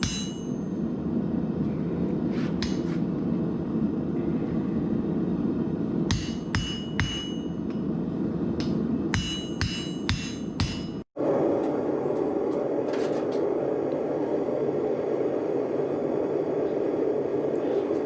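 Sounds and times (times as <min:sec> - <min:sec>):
forging hammer striking anvil: 0:00.0 - 0:00.8, 0:02.6 - 0:03.0, 0:06.1 - 0:07.8, 0:08.6 - 0:11.0
forge burner roaring: 0:00.0 - 0:09.8, 0:11.1 - 0:18.0.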